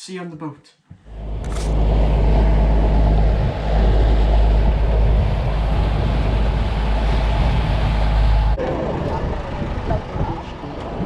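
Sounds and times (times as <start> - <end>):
motorboat engine droning: 1.0 - 11.0
rushing water noise: 1.1 - 11.0.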